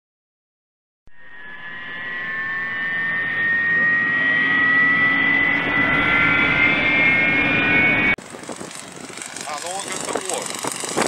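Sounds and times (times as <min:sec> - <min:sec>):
model airplane motor whining: 0:02.3 - 0:11.0.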